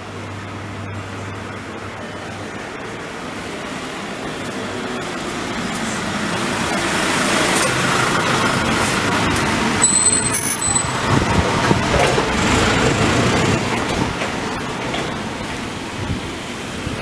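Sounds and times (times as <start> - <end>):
road vehicle approaching: 0.0 - 17.0.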